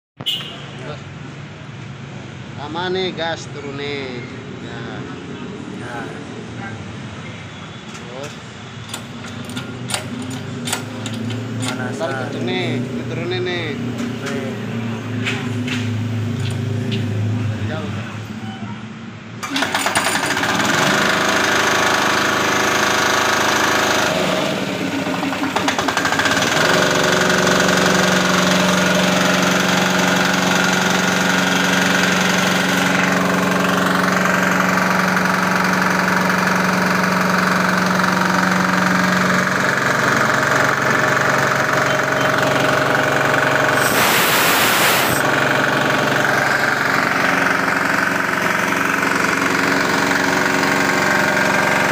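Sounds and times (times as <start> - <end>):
diesel engine knocking: 20.2 - 43.8
brief rushing hiss: 43.8 - 45.3.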